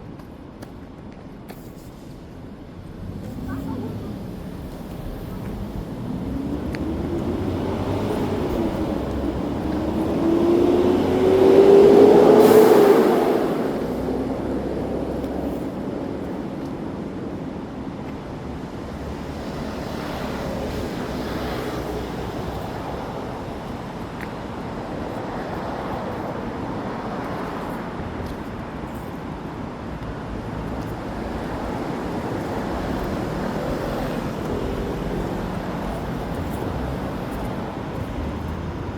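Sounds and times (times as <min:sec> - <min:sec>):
street traffic: 0:00.0 - 0:38.9
vehicle passing close: 0:03.0 - 0:15.8, 0:30.5 - 0:38.9.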